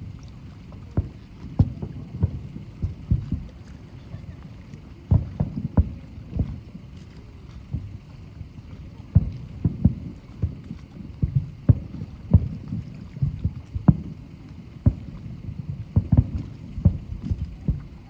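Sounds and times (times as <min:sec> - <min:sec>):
firework shells bursting: 0:14.8 - 0:17.8.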